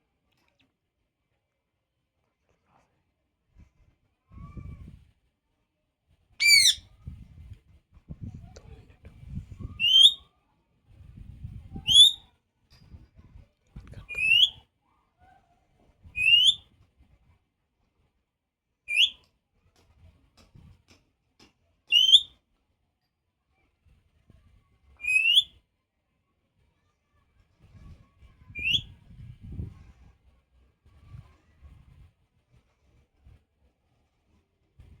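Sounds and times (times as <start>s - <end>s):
parrot whistling: 6.4s - 6.8s, 9.8s - 10.2s, 11.9s - 12.2s, 14.2s - 14.5s, 16.2s - 16.6s, 18.9s - 19.2s, 21.9s - 22.3s, 25.0s - 25.5s, 28.6s - 28.8s.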